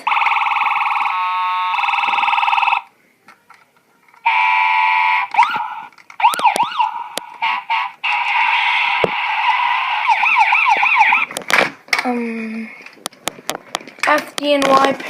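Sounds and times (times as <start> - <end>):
toy electronic siren: 0.0 - 2.9, 4.2 - 11.3.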